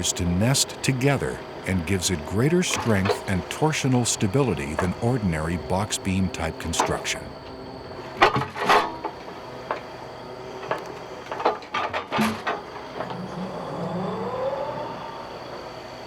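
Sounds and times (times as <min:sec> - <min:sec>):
low steady hum: 0:00.0 - 0:08.0
machine whine: 0:00.0 - 0:16.0.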